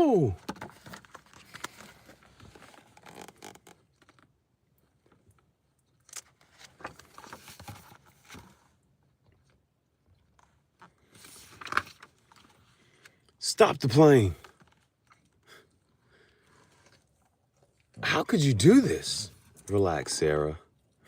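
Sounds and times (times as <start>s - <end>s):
book pages rustling: 0.4s - 4.2s, 6.2s - 8.7s, 11.0s - 12.6s.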